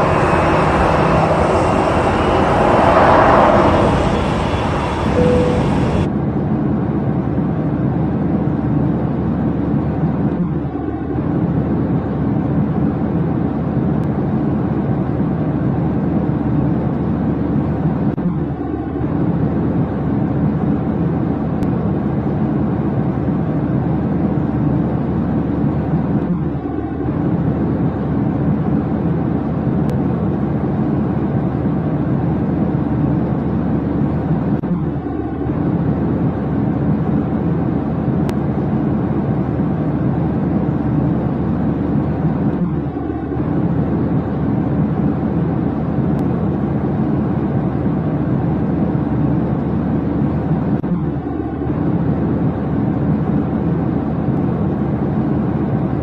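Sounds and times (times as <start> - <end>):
low engine rumble: 0.0 - 6.2.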